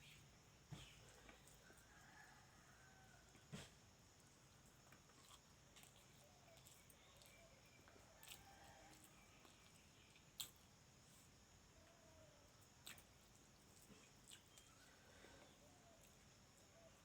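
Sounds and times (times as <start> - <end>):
person chewing food: 4.6 - 10.7, 12.8 - 16.3.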